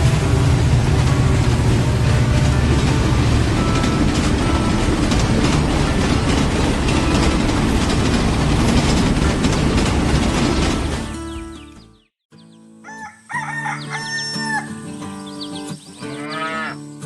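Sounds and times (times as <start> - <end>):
train wheels clattering on rails: 0.0 - 11.6.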